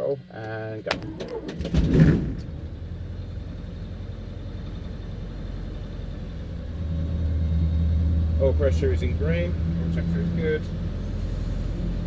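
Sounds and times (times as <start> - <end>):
piston engine starting and idling: 0.8 - 6.8.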